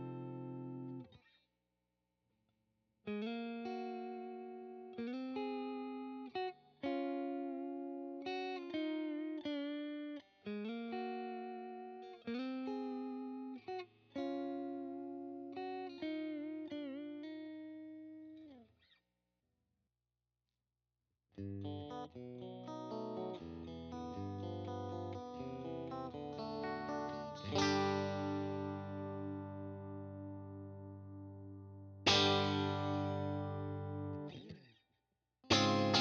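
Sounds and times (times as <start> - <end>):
clean electric guitar chords: 0.0 - 1.0, 3.1 - 13.6, 21.4 - 34.6, 35.5 - 36.0.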